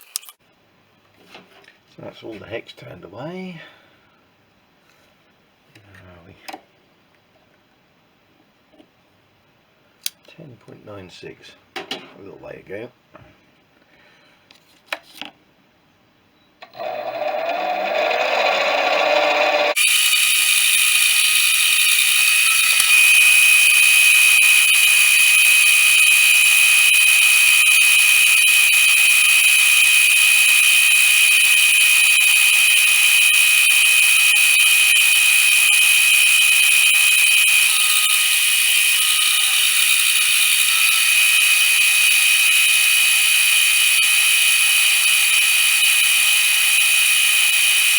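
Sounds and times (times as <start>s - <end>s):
clicks: 10.0s - 10.4s, 19.5s - 47.9s
metal lathe whining: 16.8s - 47.9s.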